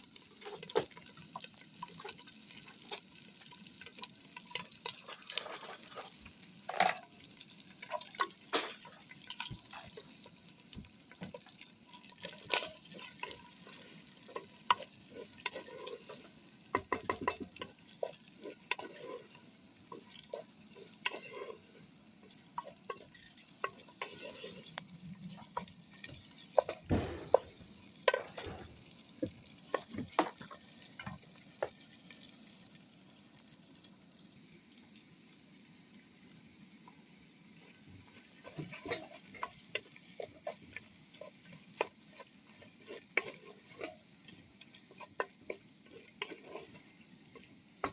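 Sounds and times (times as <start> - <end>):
food sizzling in a pan: 0.0 - 47.9
utensil scraping and knocking pan: 26.6 - 29.0.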